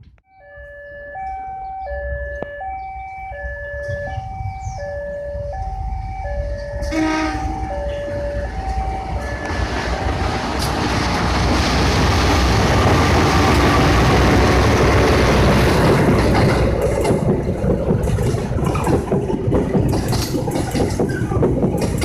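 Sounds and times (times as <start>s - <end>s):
train rumble: 0.0s - 22.0s
two-tone railway warning signal: 0.3s - 10.3s.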